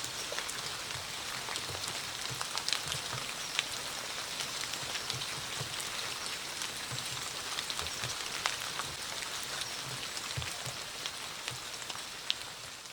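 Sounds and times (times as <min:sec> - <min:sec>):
steady rain falling: 0:00.0 - 0:12.9
dull drip knocking on a surface: 0:06.8 - 0:09.0.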